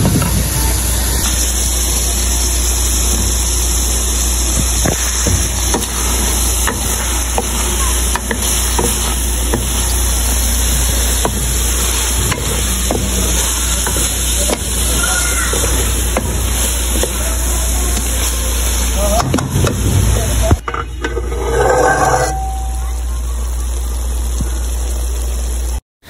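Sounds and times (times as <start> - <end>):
food sizzling in a pot: 0.0 - 25.8
low hum: 15.7 - 24.6
wooden spatula scraping a pot: 21.0 - 22.7.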